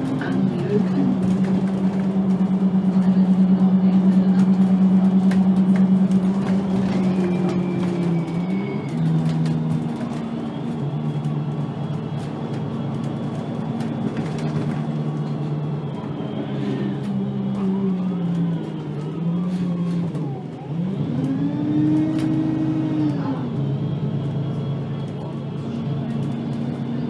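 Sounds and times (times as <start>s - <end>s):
bus engine droning: 0.0s - 27.0s.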